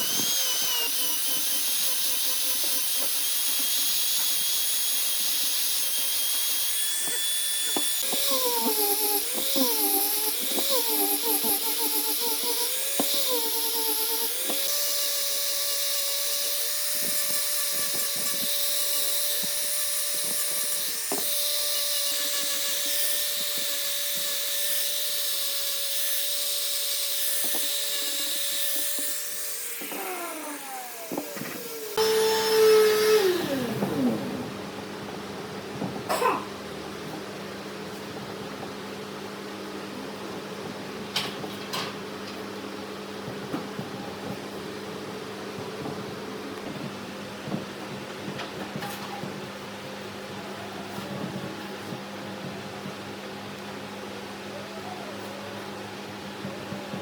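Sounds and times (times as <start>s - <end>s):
wood lathe motor humming: 0.0s - 5.1s, 5.8s - 34.6s.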